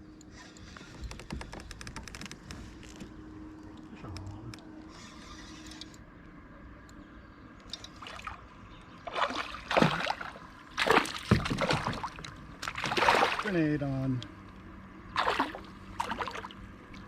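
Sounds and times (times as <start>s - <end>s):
water lapping: 7.9s - 14.5s, 15.1s - 17.0s
water splashing: 8.0s - 13.7s, 15.1s - 17.0s.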